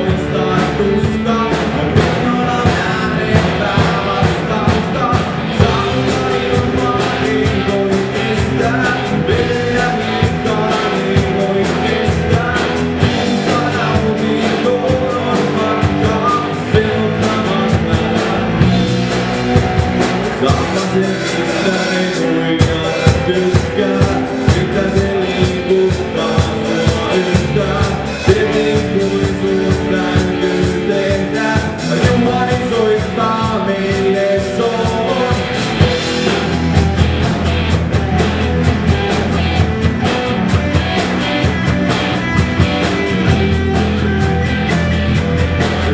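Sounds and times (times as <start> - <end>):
bass guitar: 0.0 - 45.9
drums: 0.0 - 45.9
electric guitars: 0.0 - 45.9
person singing: 0.0 - 45.9.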